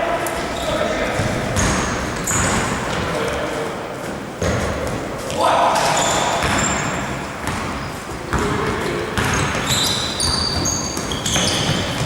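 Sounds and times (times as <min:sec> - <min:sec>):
basketball bouncing: 0:01.2 - 0:02.9, 0:04.4 - 0:05.0, 0:05.8 - 0:12.0
shoe squeaks on court: 0:05.8 - 0:07.1, 0:09.2 - 0:12.0.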